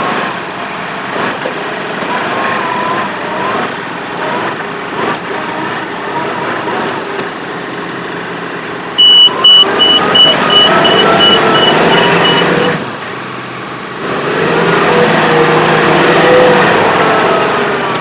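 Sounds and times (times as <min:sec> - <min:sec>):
tractor engine revving: 0:00.0 - 0:18.0
high electronic beeps: 0:09.0 - 0:12.8.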